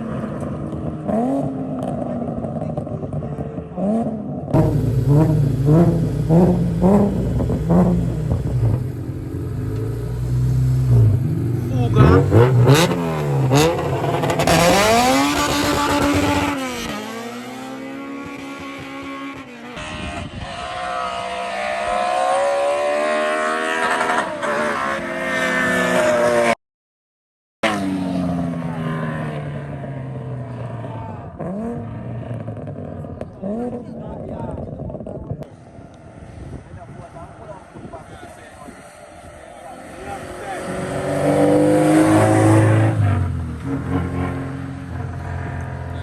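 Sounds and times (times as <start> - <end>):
car engine revving: 0.2 - 26.6, 36.8 - 46.0.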